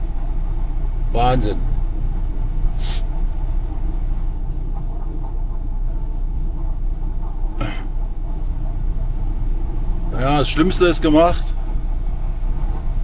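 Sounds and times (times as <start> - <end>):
short hiss: 2.8 - 3.1.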